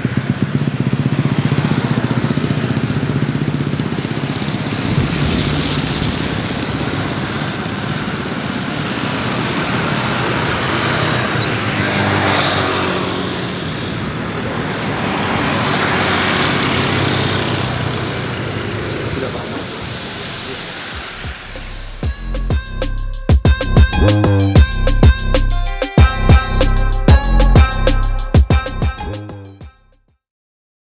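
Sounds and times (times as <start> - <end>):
jet aircraft engine: 0.0 - 22.2.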